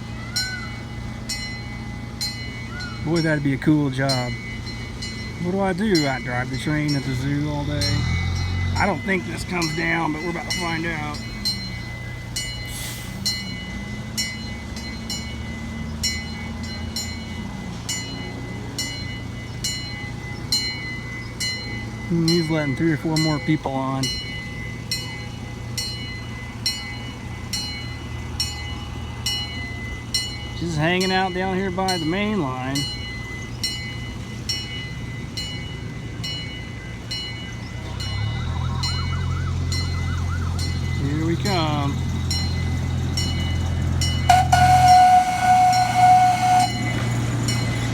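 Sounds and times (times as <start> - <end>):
small diesel engine idling: 0.0 - 20.3, 21.2 - 47.9
level crossing bell: 0.0 - 47.9
brief hiss: 12.7 - 13.3.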